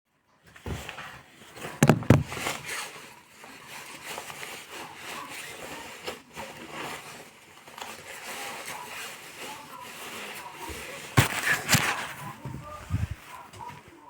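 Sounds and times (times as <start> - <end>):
crackly rustling and scraping: 0.2 - 14.0.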